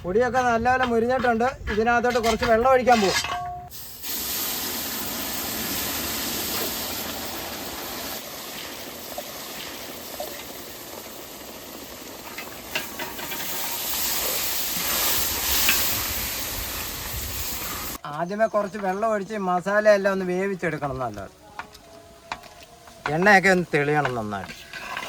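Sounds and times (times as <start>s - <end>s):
oil sizzling in a pan: 3.7s - 18.0s.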